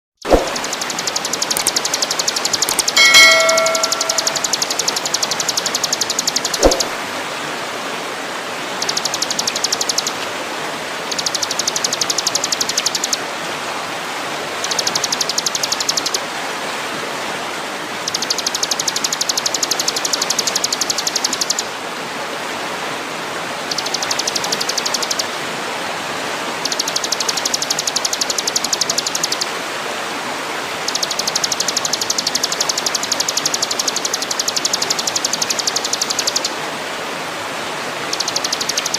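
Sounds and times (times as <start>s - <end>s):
high-pitched bird trill: 0.2s - 6.9s, 8.8s - 10.2s, 11.1s - 13.2s, 18.1s - 21.6s, 23.7s - 25.3s, 26.6s - 29.4s, 30.9s - 36.5s, 38.1s - 38.9s
sharp click: 0.2s - 7.0s.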